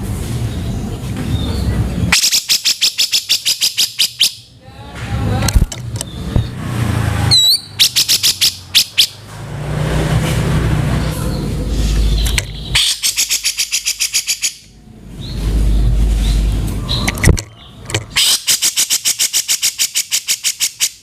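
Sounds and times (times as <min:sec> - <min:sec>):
bird rattling calls: 0:02.1 - 0:04.5, 0:07.3 - 0:09.2, 0:11.8 - 0:14.7, 0:15.3 - 0:21.0.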